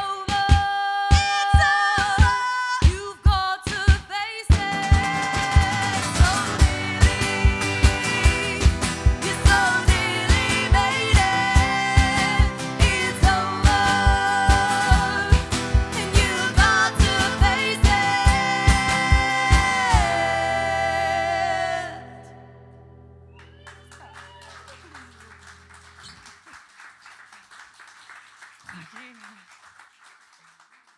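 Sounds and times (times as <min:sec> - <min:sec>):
wordless held singing: 0:00.0 - 0:22.5
steady drum beat: 0:00.3 - 0:20.4
guitar: 0:04.5 - 0:26.2.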